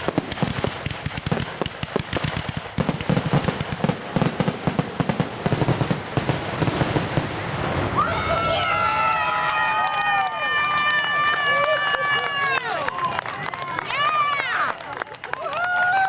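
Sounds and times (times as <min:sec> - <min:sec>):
fireworks banging: 0:00.0 - 0:08.7.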